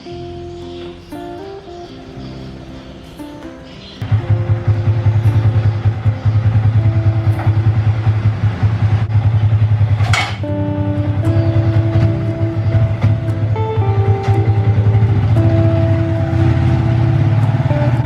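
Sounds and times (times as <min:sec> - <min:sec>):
motorcycle engine running: 0:04.0 - 0:18.0.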